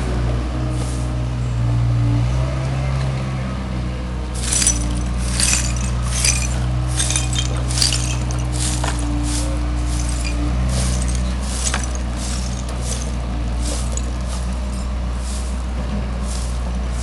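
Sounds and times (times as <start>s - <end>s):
excavator diesel engine running: 3.6s - 17.0s
metal clinks and scrapes: 4.4s - 15.0s.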